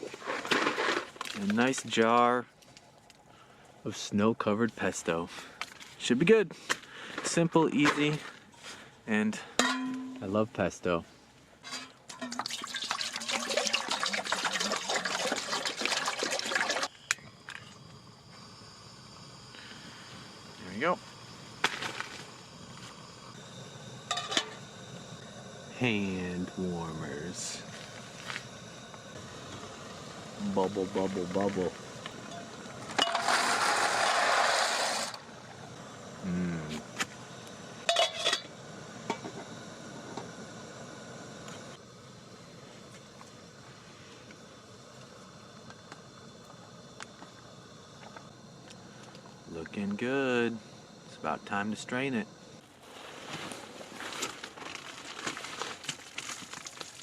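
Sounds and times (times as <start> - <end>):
faint steady hiss: 0.0 - 57.0
metal cookware clinking: 9.6 - 10.3, 11.6 - 13.4, 37.9 - 38.5
water pouring into a pot: 12.1 - 16.9, 54.8 - 57.0
person humming: 36.2 - 36.8.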